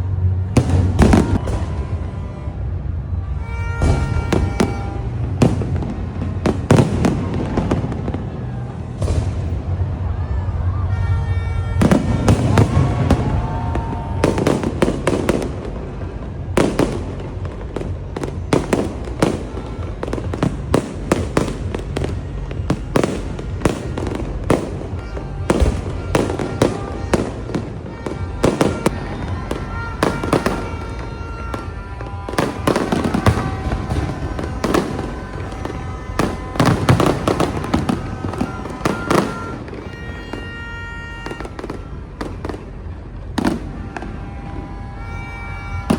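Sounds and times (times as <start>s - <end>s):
fireworks bursting and crackling: 0.0s - 45.9s
music playing: 0.0s - 45.9s.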